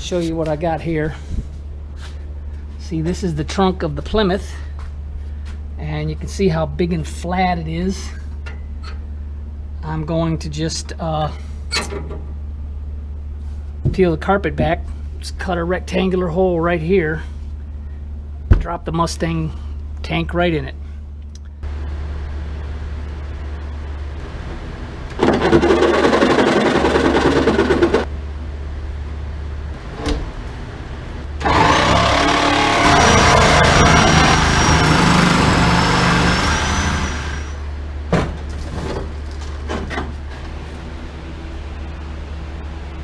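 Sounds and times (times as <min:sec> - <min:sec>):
steady low hum: 0:00.0 - 0:43.0
power tool cutting sheet metal: 0:31.4 - 0:37.6.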